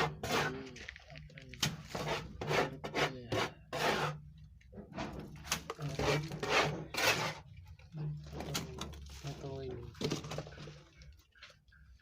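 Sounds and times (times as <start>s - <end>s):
rubbing or scraping strokes: 1.8s - 4.2s, 5.8s - 7.5s.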